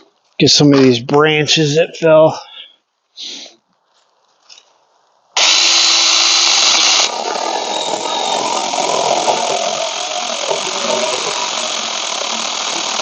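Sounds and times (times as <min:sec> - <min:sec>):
chainsaw cutting branch: 0:05.4 - 0:13.0
cordless chainsaw running: 0:05.4 - 0:13.0.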